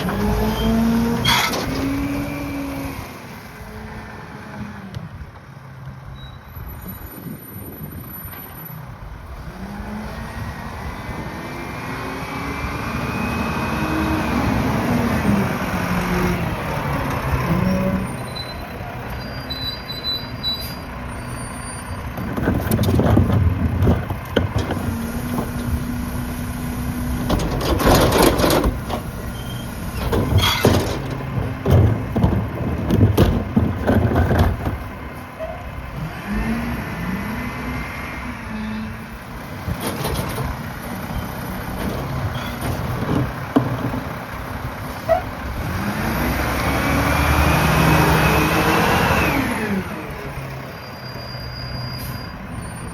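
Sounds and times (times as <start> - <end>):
garbage truck diesel engine: 0.0 - 52.9
compactor crashing and banging: 27.2 - 35.0.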